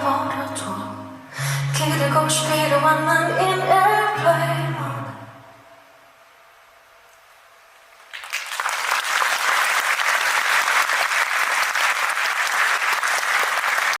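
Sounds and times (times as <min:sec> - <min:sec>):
audience applause: 0:08.0 - 0:14.0.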